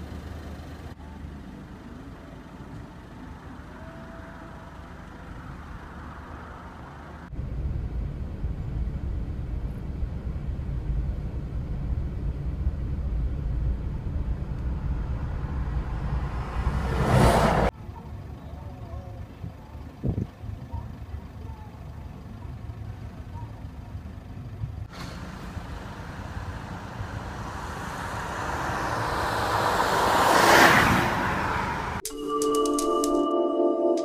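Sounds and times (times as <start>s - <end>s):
traffic rumble: 0.0s - 32.0s
vehicle passing close: 5.2s - 17.7s, 24.8s - 32.0s
music jingle: 32.0s - 34.0s.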